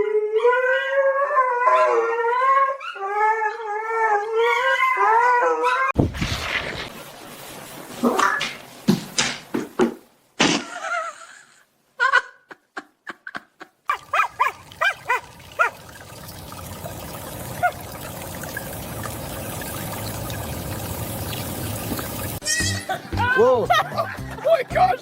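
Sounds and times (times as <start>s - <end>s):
sharp knocks: 8.9s - 10.0s
dog barking: 13.9s - 15.8s.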